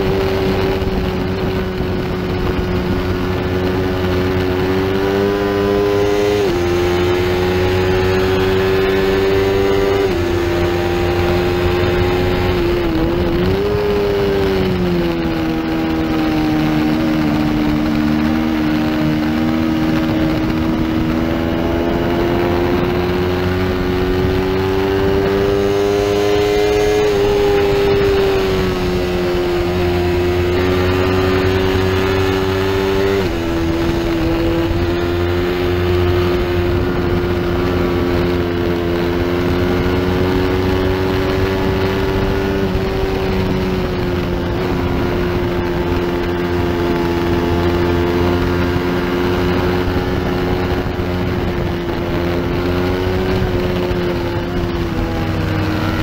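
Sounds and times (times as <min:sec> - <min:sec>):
motorcycle engine at high revs: 0:00.0 - 0:56.0
wind rush: 0:00.0 - 0:56.0.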